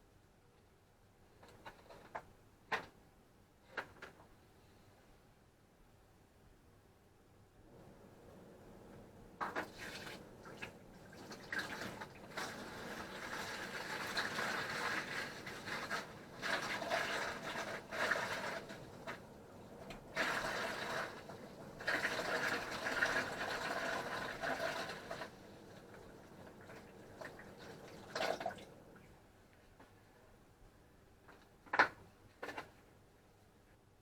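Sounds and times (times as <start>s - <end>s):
vinegar pouring into plastic bucket: 9.4s - 28.8s.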